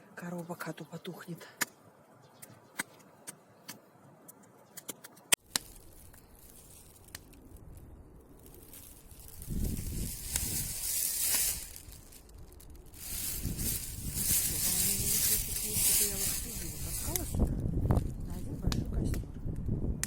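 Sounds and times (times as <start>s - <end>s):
sharp wood snap: 4.8s - 6.2s
bonfire crackling and popping: 5.3s - 14.2s.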